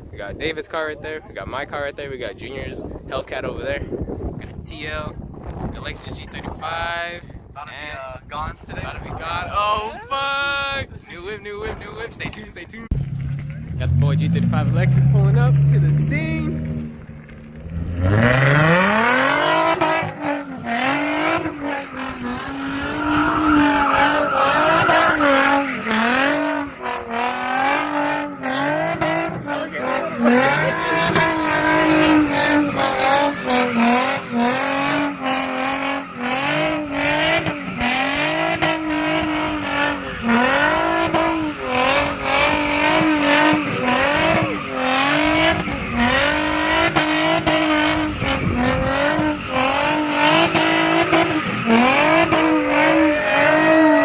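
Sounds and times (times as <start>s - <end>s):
car engine revving: 12.9s - 54.0s
tyres squealing: 17.7s - 54.0s.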